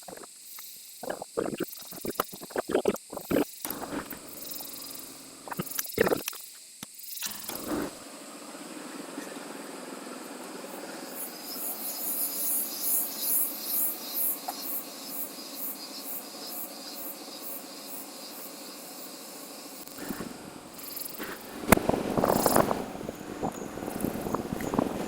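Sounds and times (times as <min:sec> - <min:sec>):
motorcycle road noise: 0:19.9 - 0:25.0
rushing wind: 0:20.0 - 0:25.0.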